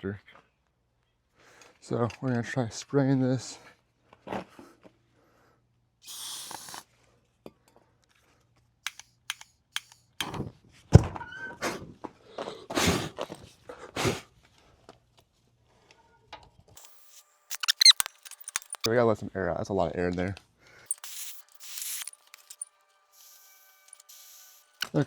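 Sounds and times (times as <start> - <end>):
aerosol spray hiss: 6.1 - 6.8, 23.2 - 24.8.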